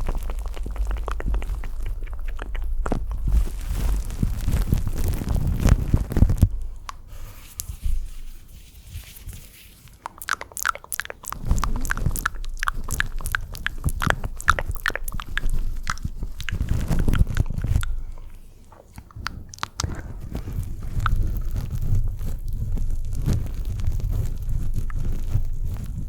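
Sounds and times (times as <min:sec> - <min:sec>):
wet mouth clicks and smacks: 0:00.0 - 0:03.2, 0:06.7 - 0:07.7, 0:10.0 - 0:21.7.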